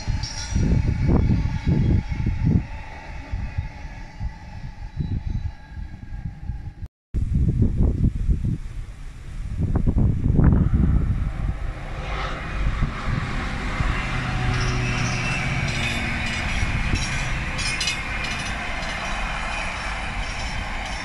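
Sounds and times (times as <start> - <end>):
freight wagons rumbling on rails: 0.0 - 6.4, 9.7 - 21.0
low engine hum: 8.6 - 21.0.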